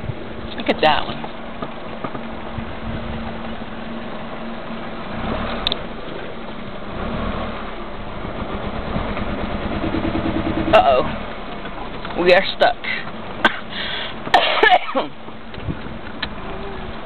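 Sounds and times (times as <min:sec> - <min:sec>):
car engine running: 0:00.0 - 0:17.0
car rumbling over bumps: 0:00.0 - 0:17.0.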